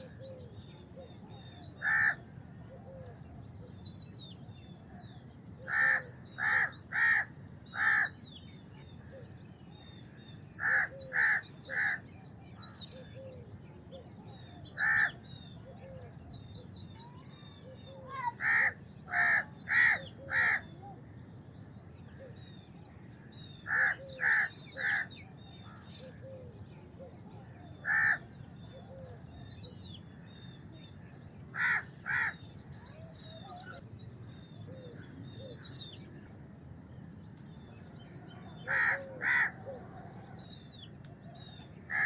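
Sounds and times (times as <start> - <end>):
crows cawing: 1.8 - 2.2, 5.6 - 8.2, 10.6 - 12.0, 14.8 - 15.2, 18.1 - 20.8, 23.7 - 25.2, 27.8 - 28.3, 31.5 - 32.5, 38.6 - 39.8
small birds chirping: 3.2 - 42.0.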